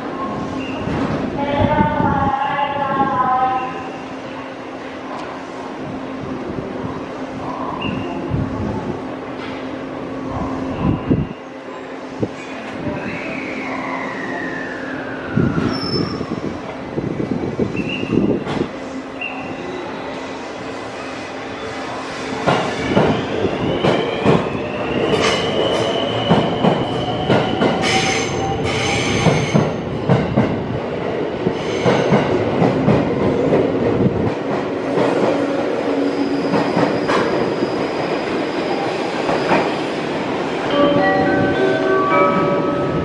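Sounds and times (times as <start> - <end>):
high-pitched wheel squeal: 13.0 - 16.3.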